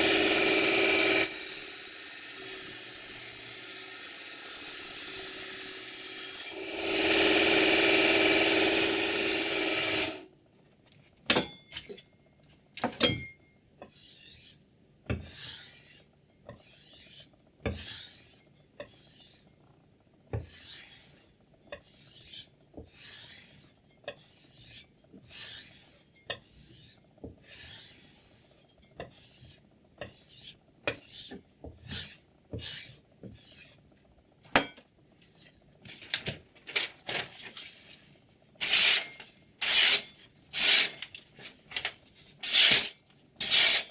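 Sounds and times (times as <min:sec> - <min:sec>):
knife blade rasping: 0:38.6 - 0:41.1, 0:42.4 - 0:43.9.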